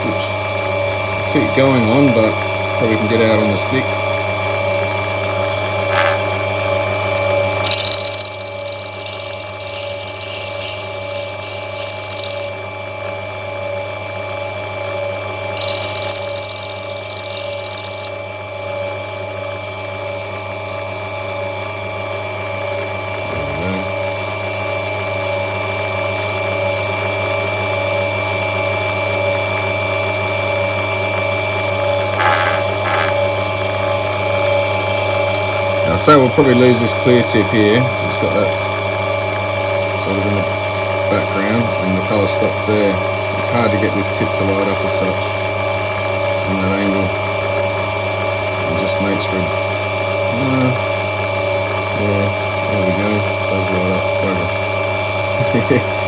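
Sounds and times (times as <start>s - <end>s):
grinding machine motor hum: 5.6s - 12.6s, 15.6s - 18.2s
stone grinding hiss: 7.6s - 12.5s, 15.6s - 18.1s, 32.0s - 33.3s.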